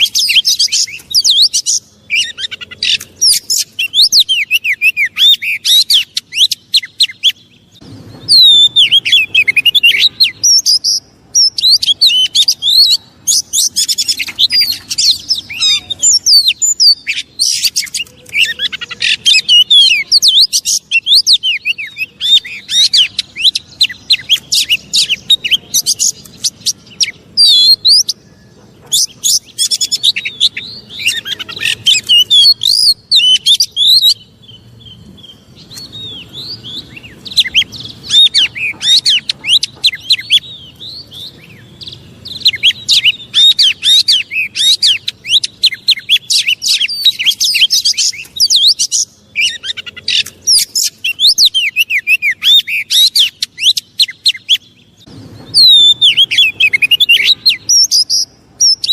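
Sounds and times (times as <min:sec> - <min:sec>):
bird singing whistled phrases: 0:00.0 - 0:07.5, 0:08.2 - 0:54.8, 0:55.5 - 0:58.9.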